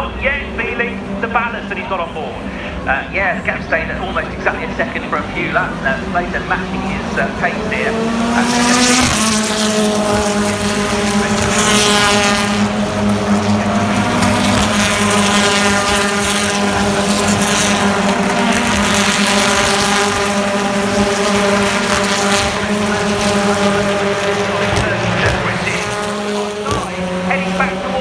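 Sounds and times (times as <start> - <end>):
cars rushing past: 0.0 - 28.0
race car engines at high revs: 0.0 - 28.0.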